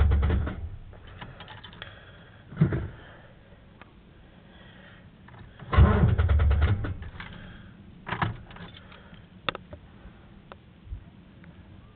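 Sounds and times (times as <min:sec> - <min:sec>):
engine starter cranking: 0:00.0 - 0:01.8, 0:05.4 - 0:07.5.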